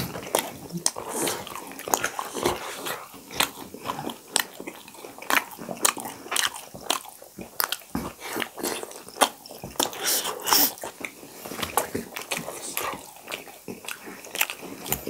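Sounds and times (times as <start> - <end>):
wet chewing and crunching: 0.0 - 15.0.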